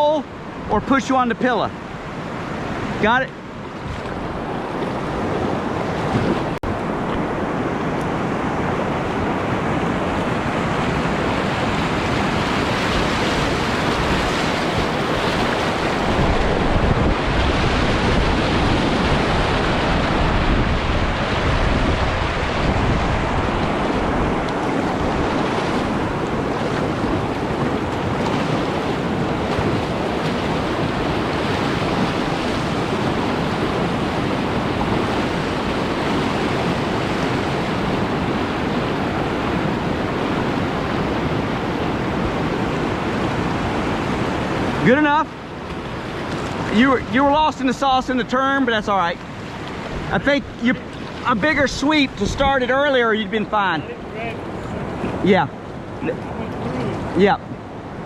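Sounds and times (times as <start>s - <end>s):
whitewater rapids rushing: 0.0s - 58.0s
wind noise on microphone: 2.0s - 44.8s.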